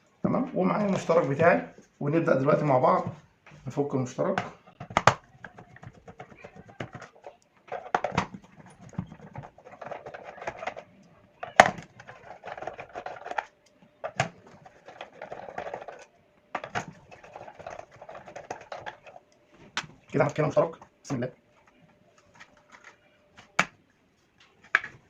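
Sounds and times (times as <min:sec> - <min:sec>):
tools rattling and scraping: 0:05.4 - 0:19.3.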